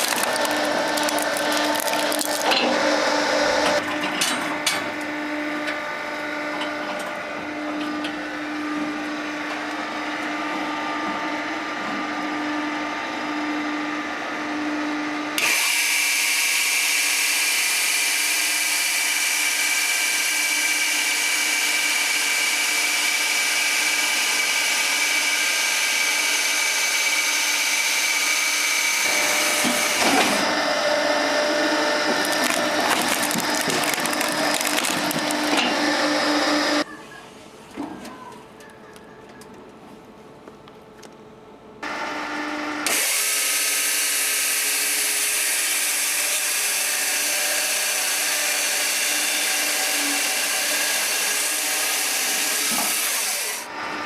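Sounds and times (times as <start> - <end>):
electric motor humming: 0.0 - 3.8, 5.0 - 36.8.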